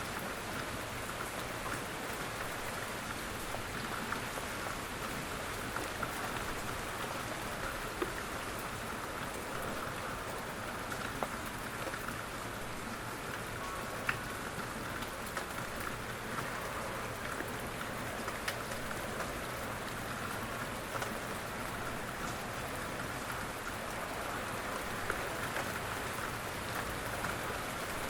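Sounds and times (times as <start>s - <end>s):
rain falling: 0.0s - 28.0s
raindrops ticking and dripping: 0.0s - 28.0s.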